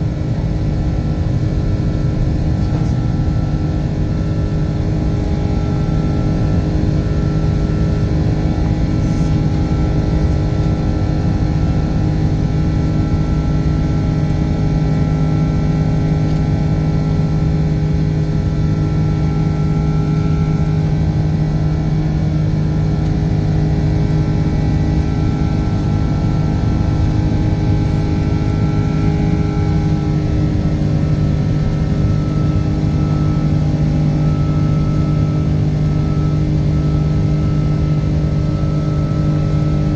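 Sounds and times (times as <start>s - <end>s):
held engine tones: 0.0s - 39.9s
jet engines roaring in cabin: 0.0s - 39.9s.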